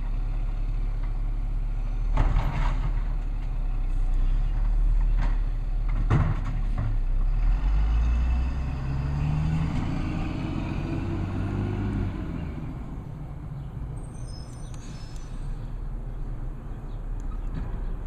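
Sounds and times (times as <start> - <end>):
diesel engine revving: 7.1 - 13.3.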